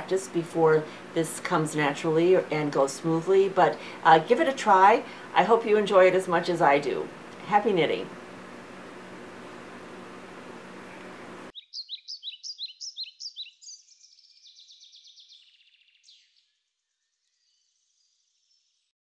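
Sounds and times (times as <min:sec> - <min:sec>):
low room hum: 0:00.0 - 0:11.5
songbird chirping: 0:10.8 - 0:18.9
bird trill: 0:11.5 - 0:18.7.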